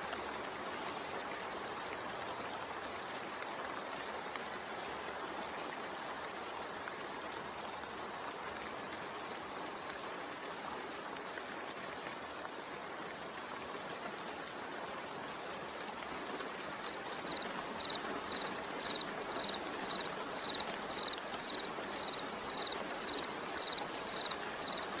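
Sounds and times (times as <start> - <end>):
steady rain: 0.0 - 25.0
high chirping: 17.3 - 24.8.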